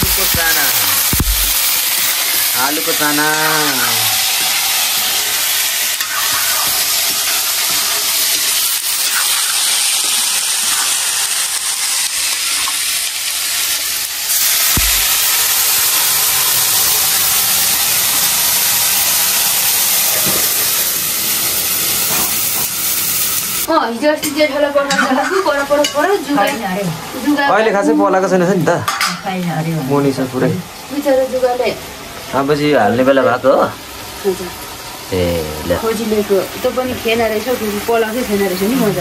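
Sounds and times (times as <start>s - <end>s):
spatula scraping wok: 0.0s - 11.9s
steam hissing: 0.0s - 23.7s, 33.7s - 39.0s
water poured into hot wok: 0.0s - 23.7s
potatoes sizzling in oil: 0.0s - 39.0s.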